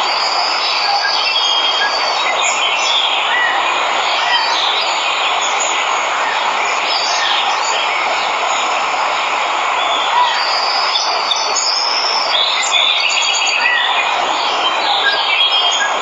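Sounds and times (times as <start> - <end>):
waterfall rushing: 0.0 - 16.0
small birds chirping: 9.8 - 16.0.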